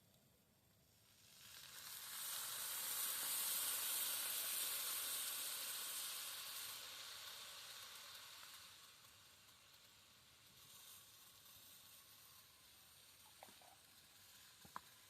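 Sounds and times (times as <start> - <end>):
sausages sizzling: 0.0 - 15.0.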